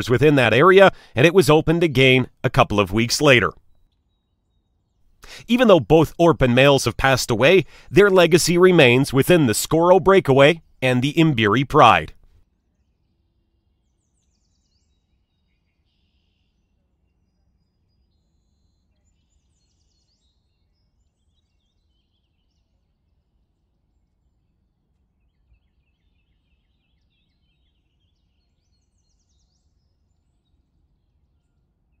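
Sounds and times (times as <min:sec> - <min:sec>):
faint birdsong: 0:25.2 - 0:32.0.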